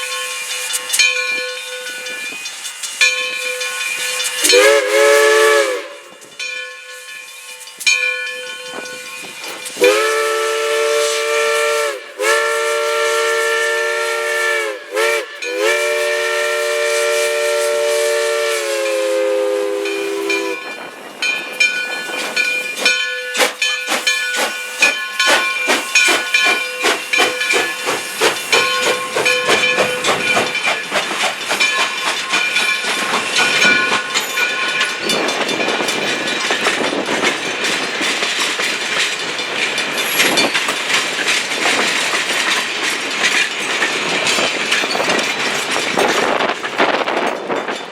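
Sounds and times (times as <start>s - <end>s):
locomotive chuffing with steam hiss: 0.0s - 47.9s
steam locomotive whistle: 3.4s - 6.2s, 9.7s - 20.8s.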